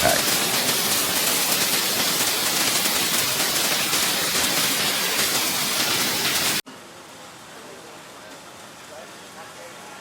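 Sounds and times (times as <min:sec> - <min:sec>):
hail and rain pelting down: 0:00.0 - 0:06.6.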